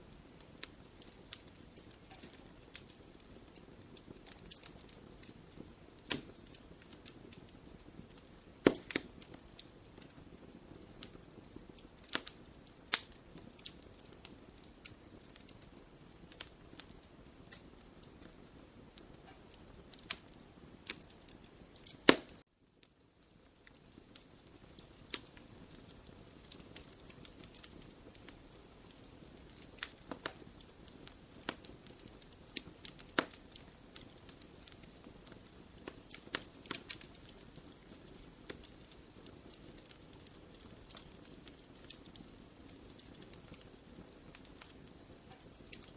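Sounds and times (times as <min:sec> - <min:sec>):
wood fire crackling: 0:00.0 - 0:45.9
sharp pops: 0:08.6 - 0:09.0.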